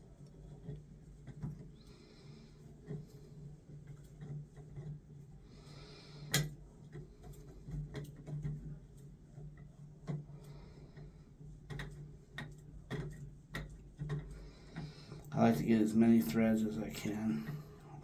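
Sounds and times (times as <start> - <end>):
faint low hum: 14.3 - 18.0.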